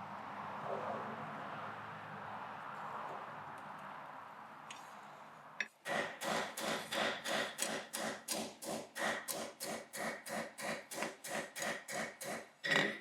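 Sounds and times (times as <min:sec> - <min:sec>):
hammer blows on anvil: 0:05.9 - 0:12.1.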